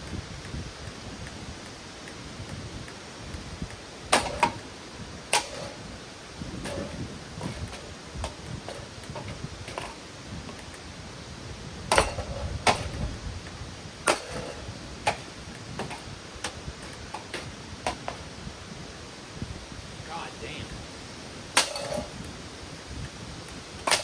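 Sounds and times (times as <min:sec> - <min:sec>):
knocks and clinks of fan parts: 0:03.7 - 0:10.9, 0:11.9 - 0:13.2, 0:14.0 - 0:18.4, 0:21.5 - 0:22.4.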